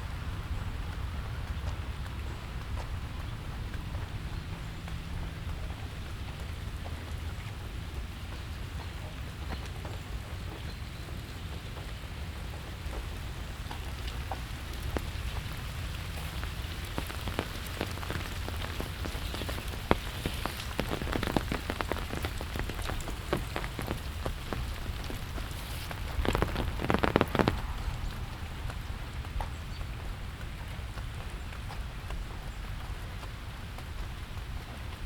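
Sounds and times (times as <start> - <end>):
steady rain: 0.0 - 35.0
heavy drops pattering: 12.9 - 31.8.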